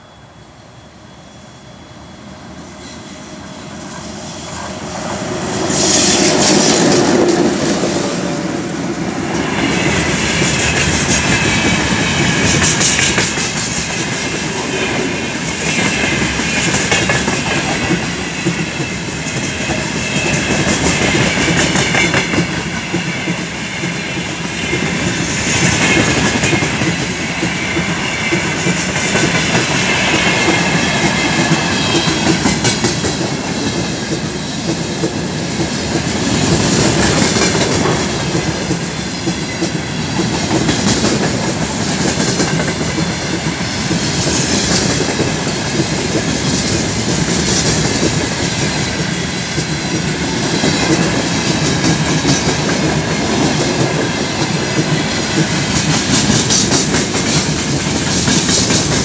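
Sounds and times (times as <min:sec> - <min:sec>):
high-pitched wheel squeal: 0:00.0 - 0:05.0
electric locomotive passing: 0:00.0 - 0:59.0
train wheels clattering: 0:05.4 - 0:59.0.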